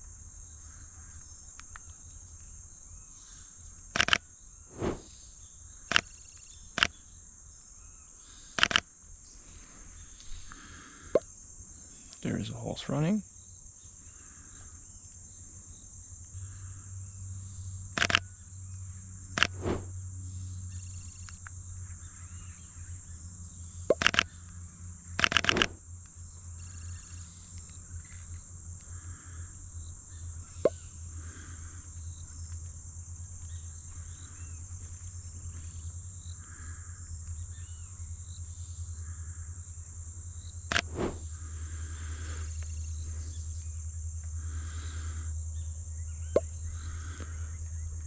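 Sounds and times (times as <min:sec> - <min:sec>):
high-pitched insect drone: 0:06.0 - 0:06.6, 0:20.7 - 0:21.4, 0:26.6 - 0:27.3.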